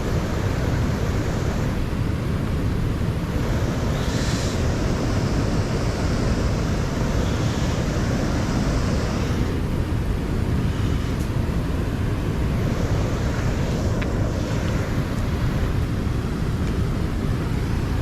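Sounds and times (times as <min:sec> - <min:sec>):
river flowing: 0:00.0 - 0:18.0
wind buffeting microphone: 0:00.0 - 0:18.0.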